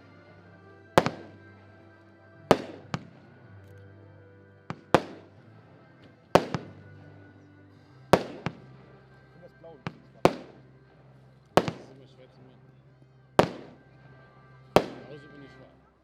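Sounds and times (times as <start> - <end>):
firework bangs echoing: 0.9 - 1.6, 2.4 - 3.4, 4.7 - 5.5, 6.2 - 7.1, 8.0 - 9.0, 9.8 - 10.9, 11.6 - 12.3, 13.4 - 14.0, 14.7 - 15.4
quiet firework crack: 0.9 - 15.7.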